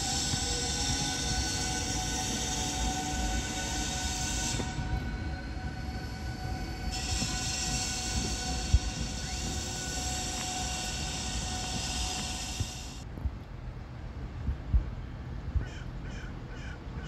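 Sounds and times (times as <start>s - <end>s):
electric train whine: 0.0s - 13.1s.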